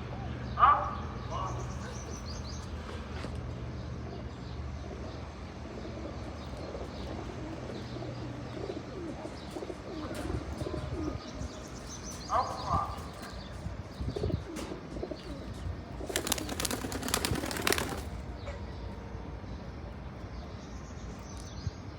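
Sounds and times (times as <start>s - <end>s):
pigeons cooing: 4.8s - 18.2s.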